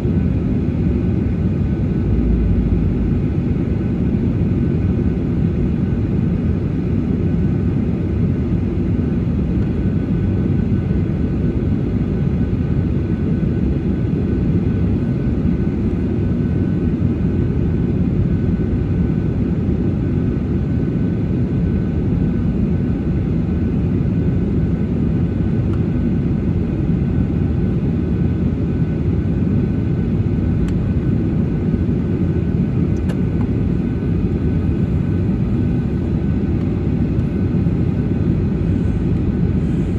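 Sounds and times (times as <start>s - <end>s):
aircraft cabin rumble: 0.0s - 11.0s, 11.8s - 39.9s
faint steady whine: 29.0s - 39.9s.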